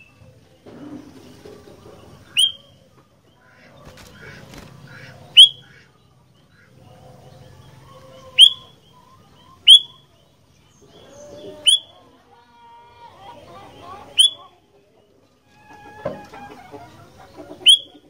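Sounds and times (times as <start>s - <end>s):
bird giving sharp high calls: 2.3s - 2.6s, 5.0s - 5.9s, 8.3s - 8.8s, 9.6s - 10.1s, 11.6s - 11.9s, 14.1s - 14.5s, 17.6s - 18.0s.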